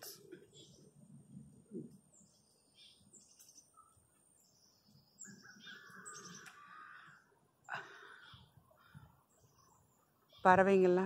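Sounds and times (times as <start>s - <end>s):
songbirds chirping: 0.0s - 11.0s
lower bird call: 4.7s - 10.5s.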